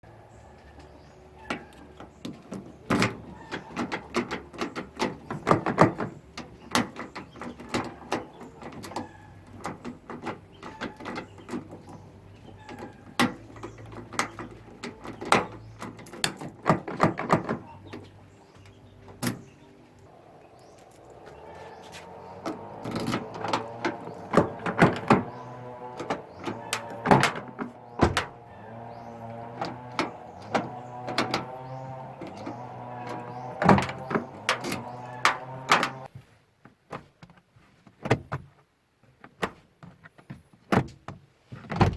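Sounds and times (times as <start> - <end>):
car door latch clicking: 21.6 - 31.6.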